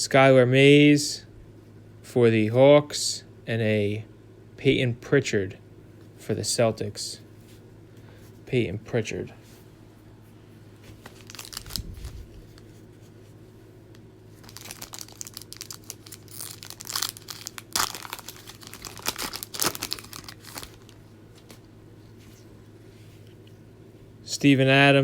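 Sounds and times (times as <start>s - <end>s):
plastic wrapper tearing and crinkling: 11.0s - 12.7s, 14.4s - 21.6s.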